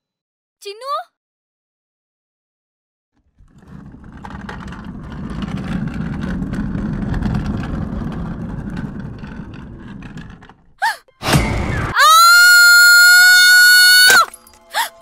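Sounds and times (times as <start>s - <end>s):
low rough rumble: 3.4s - 10.8s.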